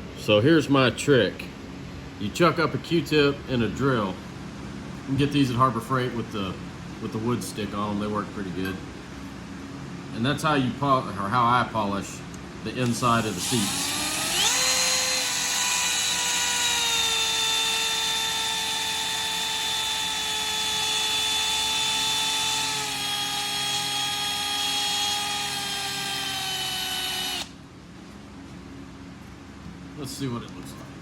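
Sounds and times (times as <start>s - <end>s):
electric drill motor whine: 13.1s - 27.6s.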